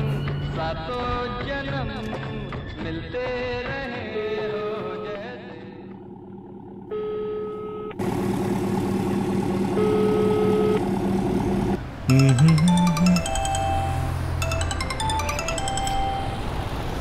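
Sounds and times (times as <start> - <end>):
car engine running: 4.4 - 17.0.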